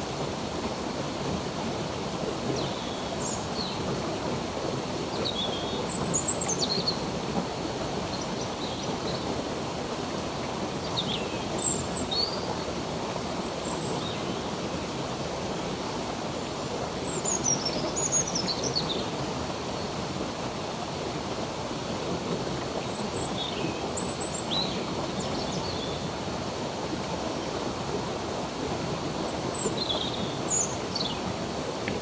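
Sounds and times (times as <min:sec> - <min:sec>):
stream rushing: 0:14.4 - 0:32.0.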